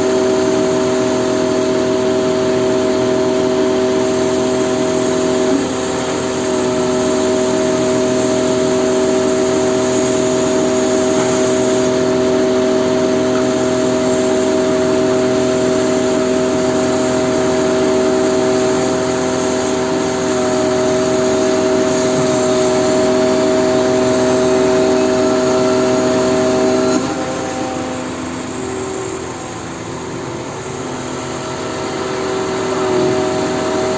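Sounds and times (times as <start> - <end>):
truck engine running: 0.0 - 33.9
steady multi-pitch whine: 13.6 - 33.0.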